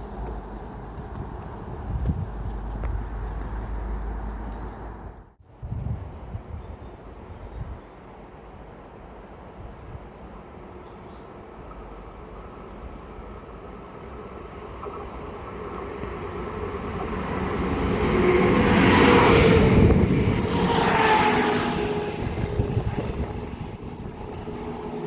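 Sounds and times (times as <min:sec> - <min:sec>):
diesel train passing: 0:08.0 - 0:25.0.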